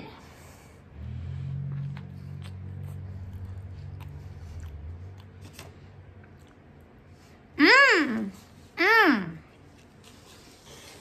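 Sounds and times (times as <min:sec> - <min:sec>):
low hum: 0:00.2 - 0:07.6
person chewing: 0:01.6 - 0:07.1.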